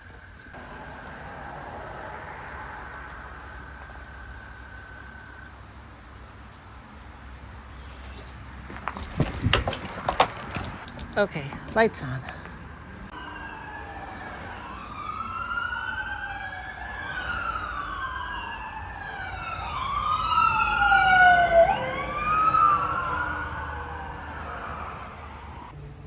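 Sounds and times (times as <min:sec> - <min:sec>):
emergency sirens wailing: 0:00.1 - 0:06.0, 0:11.6 - 0:25.8.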